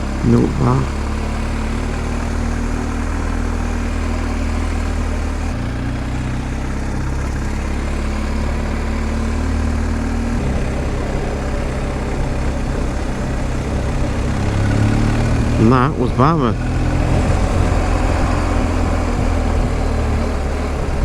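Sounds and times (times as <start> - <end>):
motorcycle engine running: 0.0 - 21.0
riding noise rushing: 9.6 - 21.0.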